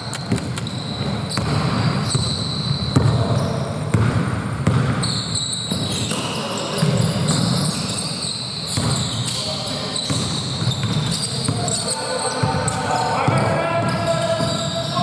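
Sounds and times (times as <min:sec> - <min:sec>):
sneakers squeaking on floor: 0:00.0 - 0:15.0
basketball bouncing on hardwood: 0:01.3 - 0:03.2, 0:03.9 - 0:05.1.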